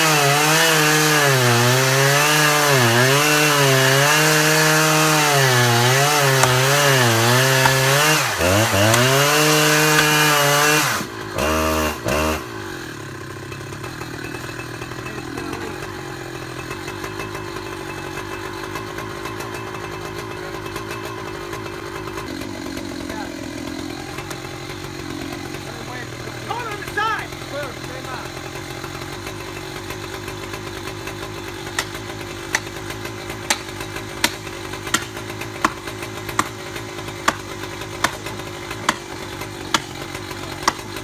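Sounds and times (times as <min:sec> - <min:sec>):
chainsaw cutting at high revs: 0:00.0 - 0:41.0.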